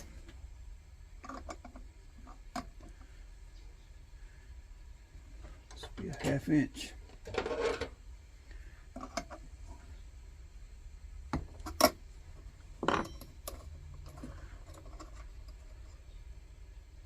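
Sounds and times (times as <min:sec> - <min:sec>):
wrench clinking on metal: 0:12.8 - 0:13.7.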